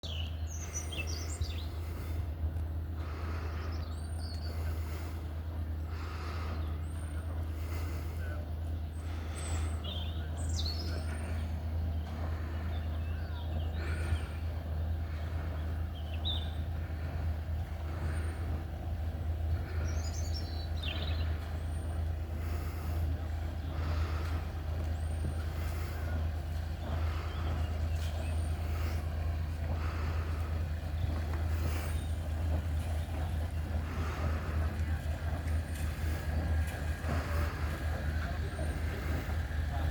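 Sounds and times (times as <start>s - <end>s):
steady low engine drone: 0.0s - 39.9s.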